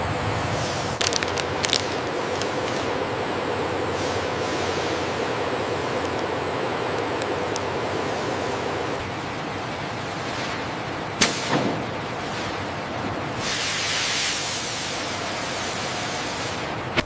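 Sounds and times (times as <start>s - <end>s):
factory machinery noise: 0.0s - 17.0s
hiss: 0.5s - 1.0s, 3.8s - 5.3s, 11.2s - 11.6s, 13.3s - 16.7s.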